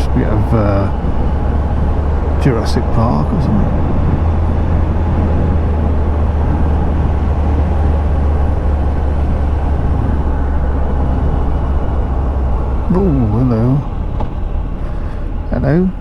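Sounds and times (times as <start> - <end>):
motorcycle engine cruising drone: 0.0 - 16.0.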